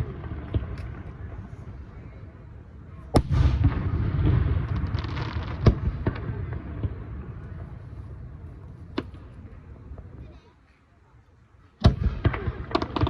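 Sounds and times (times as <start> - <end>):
small fireworks pops: 0.0 - 2.0, 3.1 - 10.2, 11.8 - 13.0
fireworks bangs: 0.0 - 10.2, 11.8 - 13.0
rumbling fireworks crackle: 0.0 - 10.4, 11.8 - 13.0.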